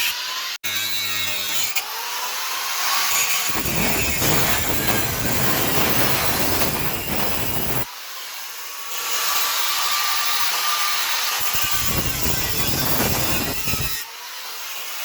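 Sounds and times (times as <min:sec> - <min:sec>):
power tool grinding: 0:00.0 - 0:07.9, 0:11.0 - 0:15.0.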